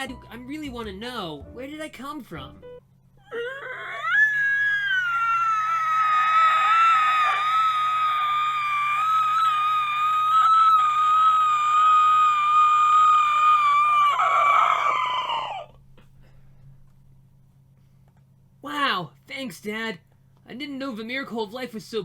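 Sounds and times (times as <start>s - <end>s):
long high-pitched scream: 3.2s - 15.8s.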